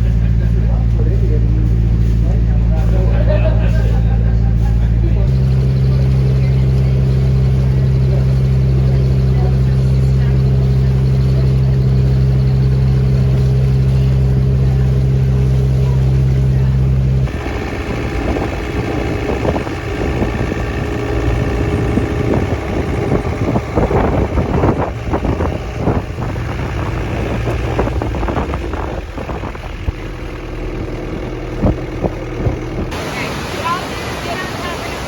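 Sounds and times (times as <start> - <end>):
boat engine humming: 0.0 - 35.0
wind buffeting microphone: 7.2 - 34.4.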